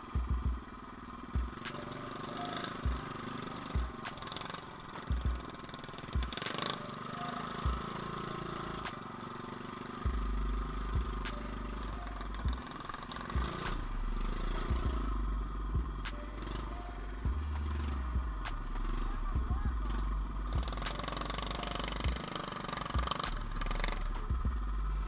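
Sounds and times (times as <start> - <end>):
small motorbike engine running: 0.0 - 25.0
heavy low rumble: 10.0 - 22.2, 22.9 - 25.0.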